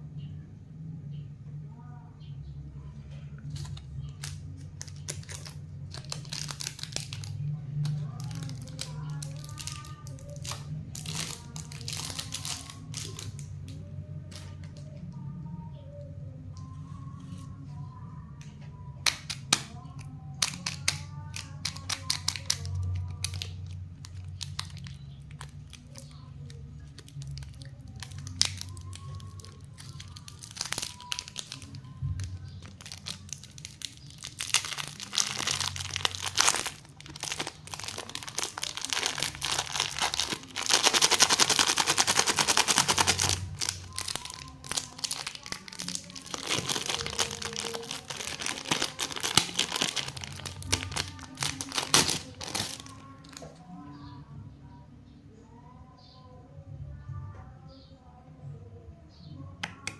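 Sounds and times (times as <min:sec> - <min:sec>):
plastic wrappers crinkling: 0:03.4 - 0:14.9, 0:19.0 - 0:53.6.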